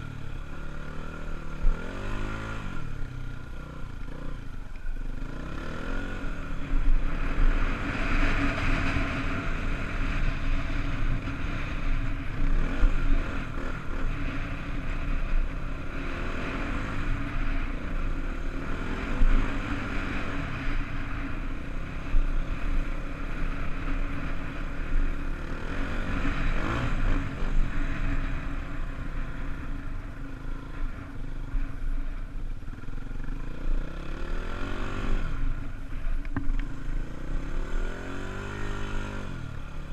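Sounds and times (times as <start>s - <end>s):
dirt bike engine revving: 5.2s - 28.9s.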